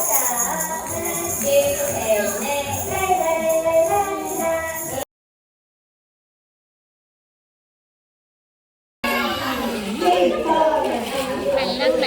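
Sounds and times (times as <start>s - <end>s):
jingling percussion: 0.0s - 5.1s
music with singing: 0.0s - 5.1s.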